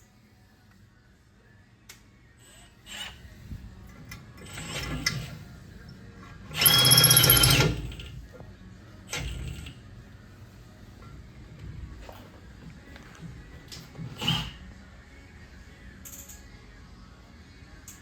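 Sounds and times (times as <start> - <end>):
handheld power tool whining: 6.6 - 8.0.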